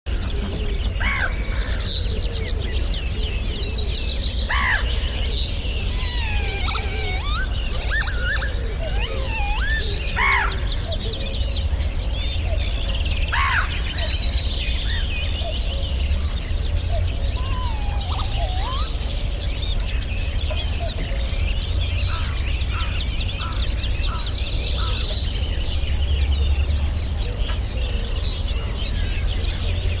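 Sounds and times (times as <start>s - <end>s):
birds chirping and whistling: 0.1s - 30.0s
fast rattling bird trill: 5.8s - 10.9s.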